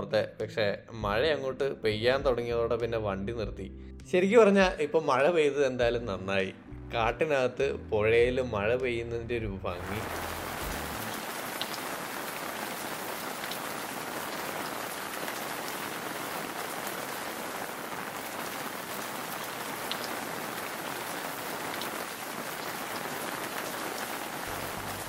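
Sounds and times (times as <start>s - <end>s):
heavy rain on foliage: 9.8s - 25.0s.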